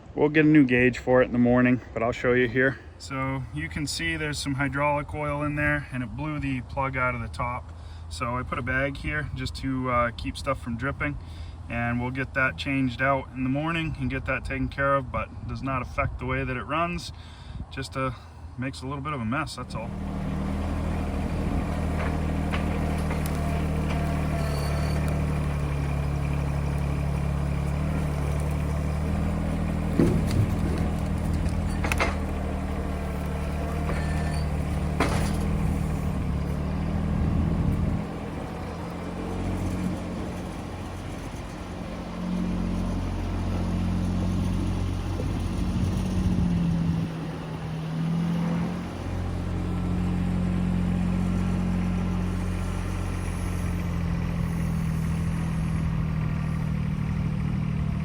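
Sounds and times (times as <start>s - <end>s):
engine running: 19.5s - 58.0s
sharp knocks: 29.8s - 32.4s.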